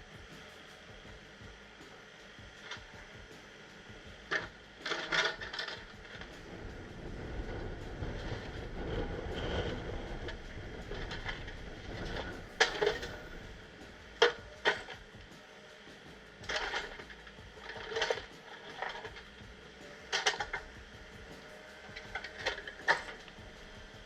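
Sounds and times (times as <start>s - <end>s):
boulders clanking and knocking: 4.3s - 13.6s
low rumbling scrape: 5.2s - 14.6s.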